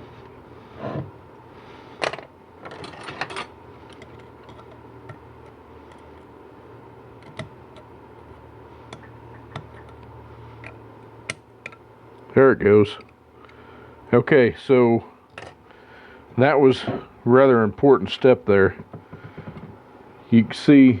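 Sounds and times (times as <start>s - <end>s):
metal tools clicking and scraping: 2.6s - 4.8s.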